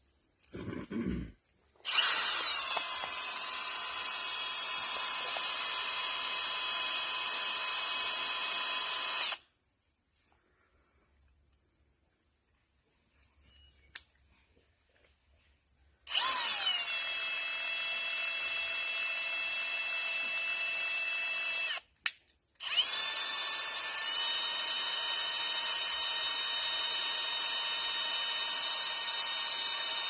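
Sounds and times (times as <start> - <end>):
electric drill whining: 1.8 - 9.4, 16.1 - 21.9, 22.6 - 30.0.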